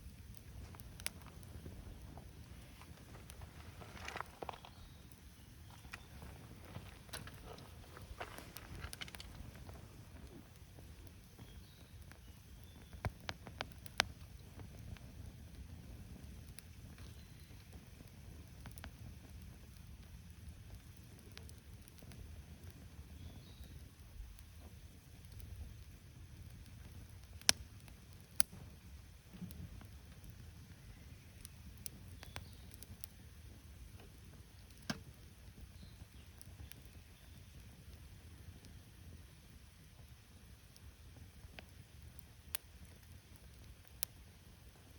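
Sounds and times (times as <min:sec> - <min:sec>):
low steady rumble: 0:00.0 - 0:11.8
campfire crackling and popping: 0:00.0 - 0:44.9
faint bird chirps: 0:04.5 - 0:06.3, 0:11.1 - 0:13.1, 0:17.0 - 0:17.8, 0:23.1 - 0:24.6, 0:30.6 - 0:32.9, 0:35.6 - 0:37.7.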